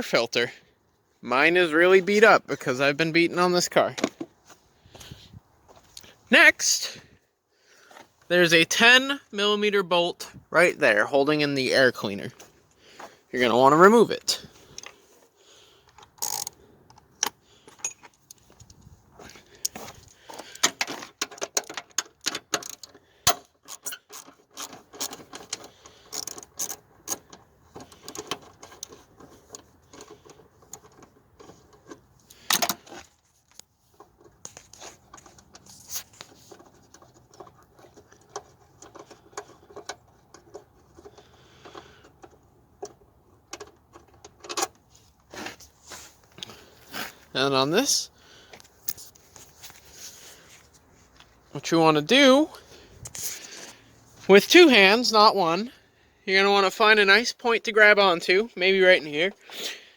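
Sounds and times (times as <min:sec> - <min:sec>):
ratchet wrench clicking: 0:16.2 - 0:16.5.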